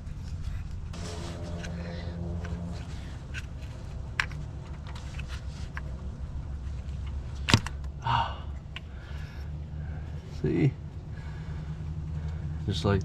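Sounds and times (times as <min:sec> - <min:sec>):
steady low hum: 0:00.0 - 0:13.0
metal scrape: 0:00.9 - 0:06.2.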